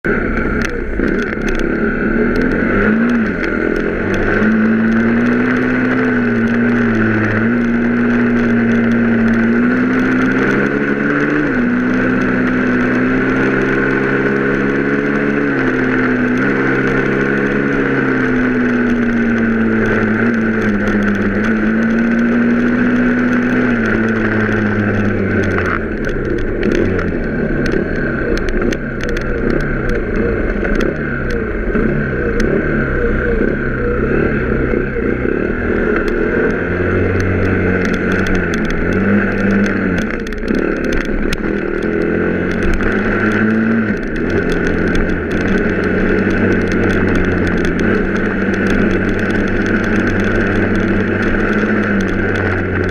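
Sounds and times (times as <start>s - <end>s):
vehicle engine running: 0.0s - 52.9s.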